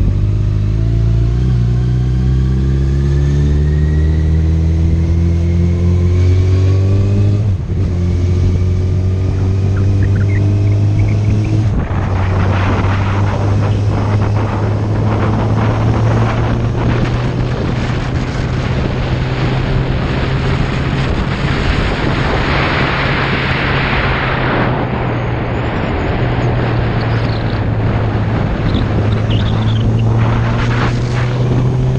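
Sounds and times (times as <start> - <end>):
wind noise over microphone: 0.0 - 31.9
motorcycle engine running: 7.5 - 22.4, 26.5 - 31.9.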